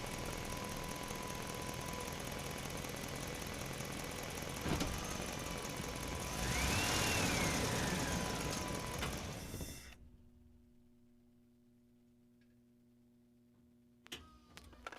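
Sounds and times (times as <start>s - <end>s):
toy excavator engine drone: 5.9s - 9.7s.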